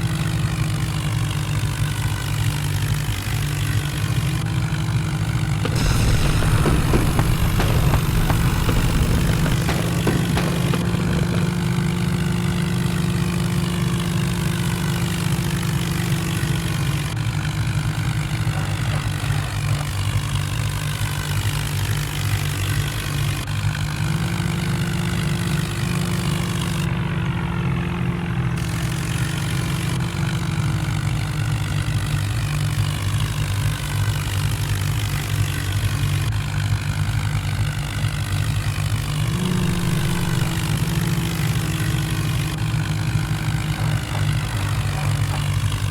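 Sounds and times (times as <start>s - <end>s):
vehicle engine running: 0.0s - 45.9s.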